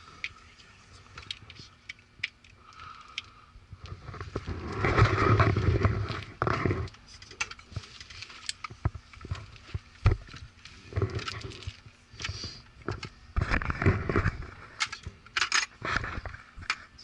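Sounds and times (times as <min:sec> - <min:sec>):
rattle of rummaging in tools: 0:03.9 - 0:16.9.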